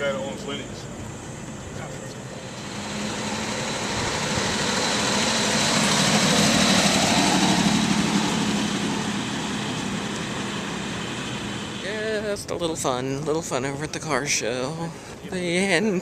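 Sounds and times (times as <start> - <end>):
vehicle engine passing by: 2.2 - 11.9.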